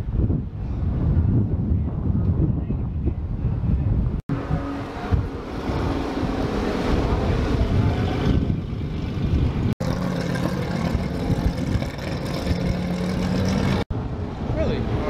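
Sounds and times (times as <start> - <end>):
car engines running: 4.8 - 13.9.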